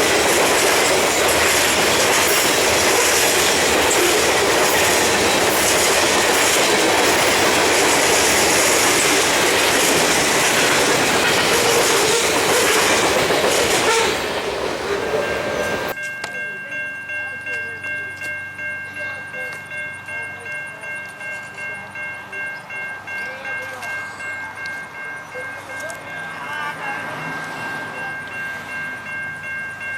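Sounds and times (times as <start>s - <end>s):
train wheels rolling on rails: 0.0s - 16.0s.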